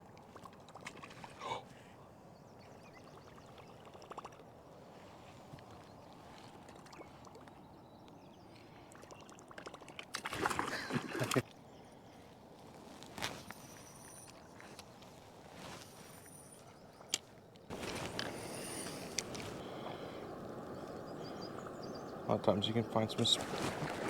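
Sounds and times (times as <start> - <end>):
water lapping and trickling: 0.0 - 24.0
splashing and rattling: 0.2 - 1.4, 8.9 - 11.4, 23.2 - 24.0.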